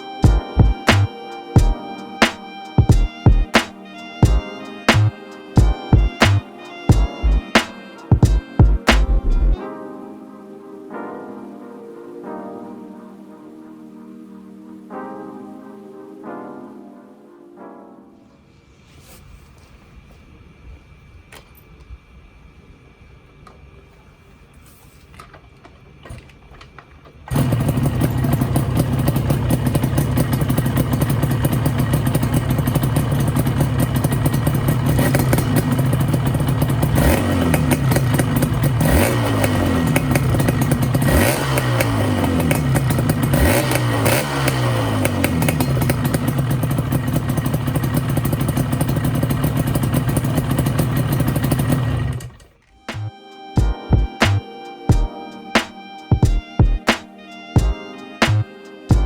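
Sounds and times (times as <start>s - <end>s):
two-stroke engine revving: 27.3s - 53.1s.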